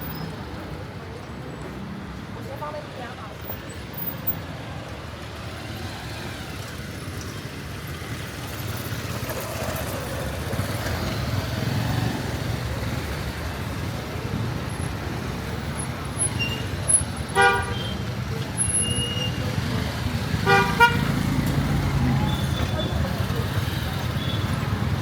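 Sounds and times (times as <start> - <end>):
vehicle engine passing by: 19.6 - 25.0.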